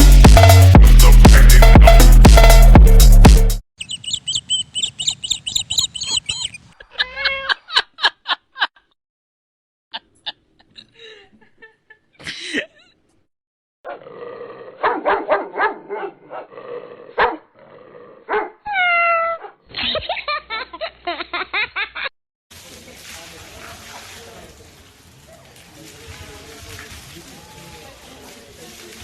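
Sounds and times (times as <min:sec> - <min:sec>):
dogs barking and yipping: 0:03.8 - 0:06.8, 0:14.8 - 0:16.5, 0:17.2 - 0:17.5, 0:18.3 - 0:19.6.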